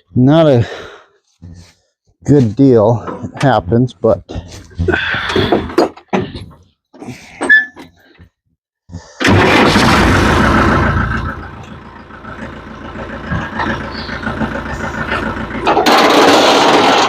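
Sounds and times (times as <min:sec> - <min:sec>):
tractor engine running: 0:09.2 - 0:17.0.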